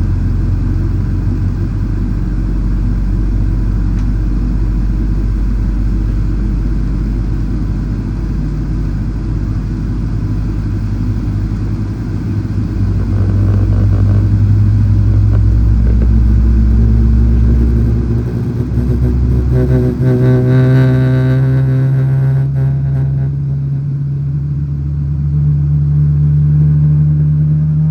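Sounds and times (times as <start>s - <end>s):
airliner rumble and hum: 0.0s - 27.9s
high whining tones: 9.6s - 24.5s.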